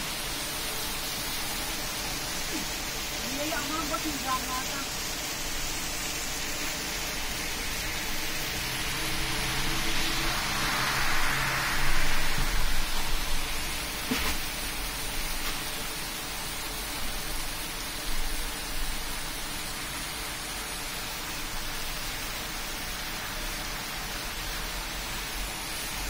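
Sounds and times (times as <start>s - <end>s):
heavy rain on pavement: 0.0s - 26.0s
vehicle swishing past on wet road: 5.0s - 16.8s.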